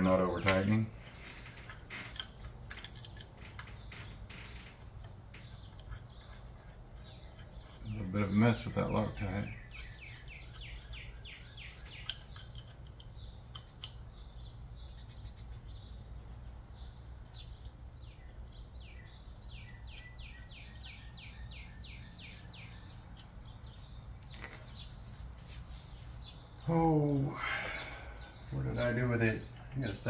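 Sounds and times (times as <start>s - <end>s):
steady low hum: 0.0s - 30.0s
bird singing whistled notes: 17.4s - 23.0s.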